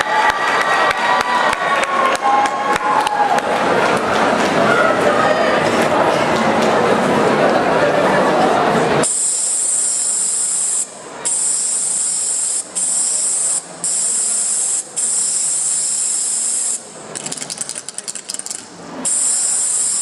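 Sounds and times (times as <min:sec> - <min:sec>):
spray paint can hissing: 0:09.0 - 0:20.0.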